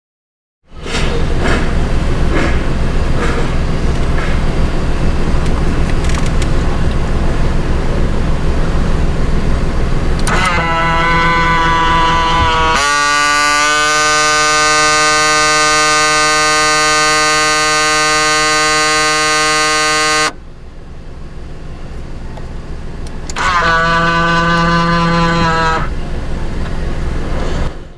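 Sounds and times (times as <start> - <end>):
mirror motor buzzing whine: 10.0 - 20.5, 22.5 - 27.7.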